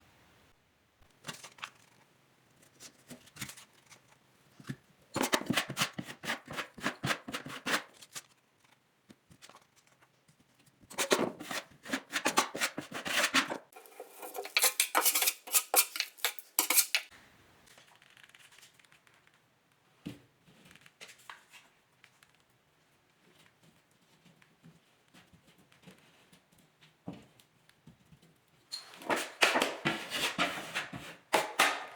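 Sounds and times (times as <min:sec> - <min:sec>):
hand tools scraping drywall: 0:10.9 - 0:17.1, 0:29.0 - 0:31.9.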